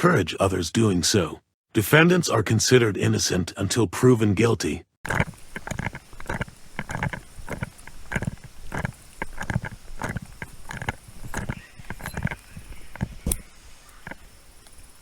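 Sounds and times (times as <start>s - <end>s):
footsteps walking: 5.0s - 14.3s
gear jostling against camera: 5.0s - 15.0s.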